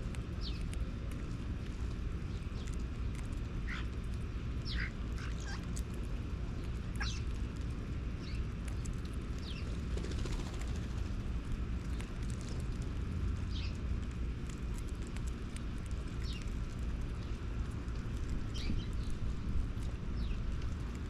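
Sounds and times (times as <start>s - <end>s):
steady low rumble: 0.0s - 21.0s
birds calling: 3.6s - 4.0s, 4.6s - 5.7s, 6.6s - 7.3s.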